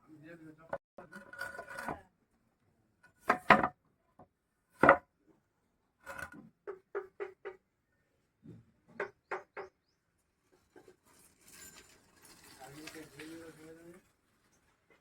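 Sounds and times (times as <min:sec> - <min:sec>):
tool knocking on wood: 0:03.3 - 0:03.7.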